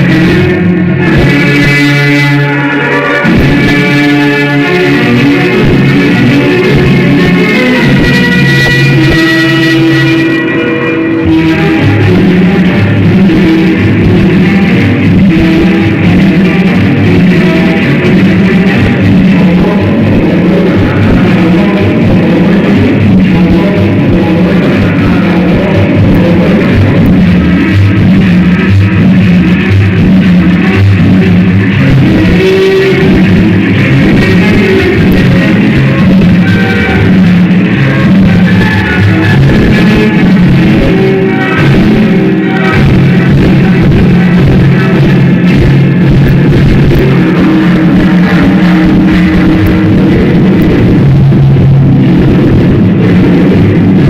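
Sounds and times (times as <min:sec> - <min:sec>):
loud music with bass line: 0:00.0 - 0:54.0.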